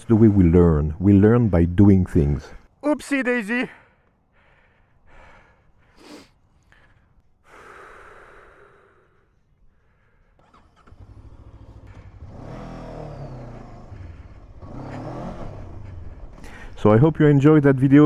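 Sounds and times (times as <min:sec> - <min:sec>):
person breathing and gasping: 0:03.7 - 0:10.4, 0:15.6 - 0:16.8
motorcycle engine running: 0:10.4 - 0:17.4.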